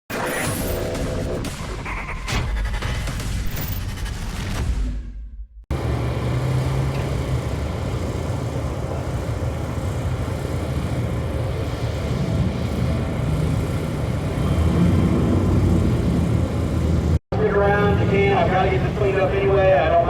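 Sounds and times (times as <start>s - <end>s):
car engine idling: 5.7s - 20.0s.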